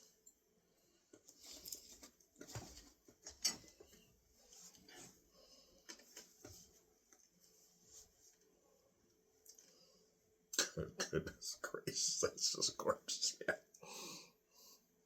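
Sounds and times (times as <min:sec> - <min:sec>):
faint small clicks: 0:09.4 - 0:09.8.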